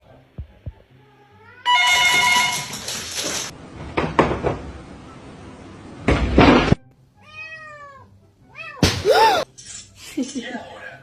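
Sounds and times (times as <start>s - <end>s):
cat meowing: 7.2s - 9.4s.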